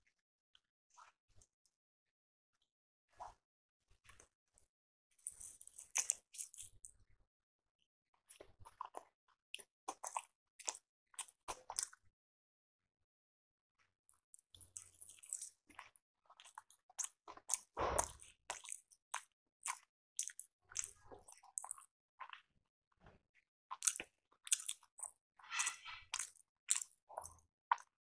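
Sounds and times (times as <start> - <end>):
person chewing with wet smacks: 5.2 - 7.0, 8.3 - 12.0, 14.3 - 22.5, 23.7 - 28.0.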